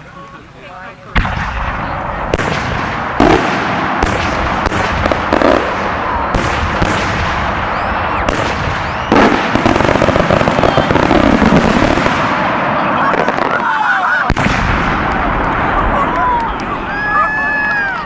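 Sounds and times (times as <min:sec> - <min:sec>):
firework bangs: 0:01.2 - 0:18.0
firework crackle: 0:01.2 - 0:18.0
firework whistles: 0:01.4 - 0:18.0.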